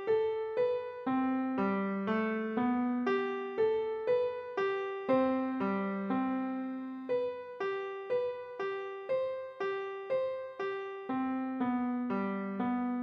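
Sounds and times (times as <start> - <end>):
solo piano playing: 0.0 - 13.0.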